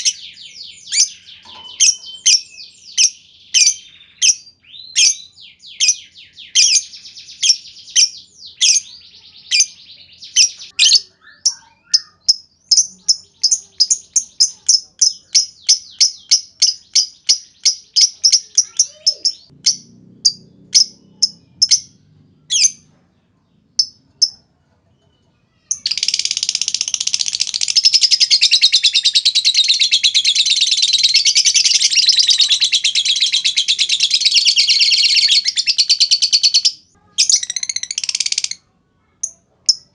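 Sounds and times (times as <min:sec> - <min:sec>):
lovebird sharp high chirps: 0:00.0 - 0:22.9, 0:25.6 - 0:38.6
lovebird chattering trill: 0:09.5 - 0:22.8, 0:25.6 - 0:38.6.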